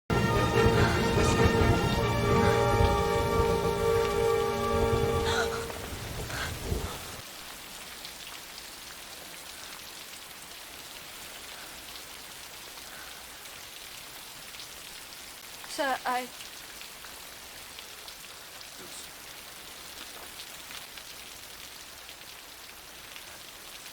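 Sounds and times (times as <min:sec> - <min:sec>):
held music chord: 0:00.1 - 0:06.2
steady rain falling: 0:00.1 - 0:23.9.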